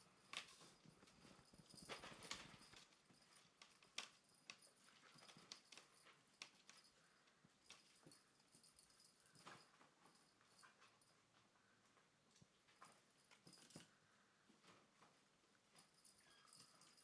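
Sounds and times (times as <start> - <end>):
kitten paws tapping and scrabbling: 0.4 - 7.0.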